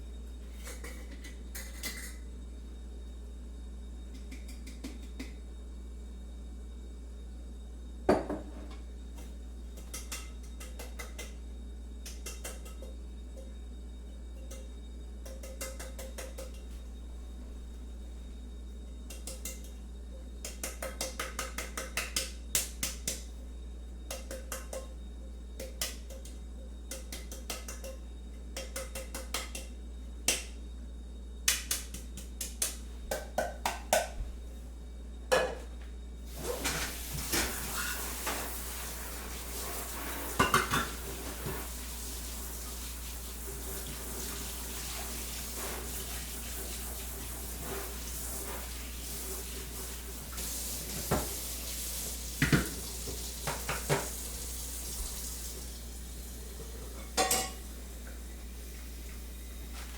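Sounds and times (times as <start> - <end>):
steady hiss: 36.3 - 59.9.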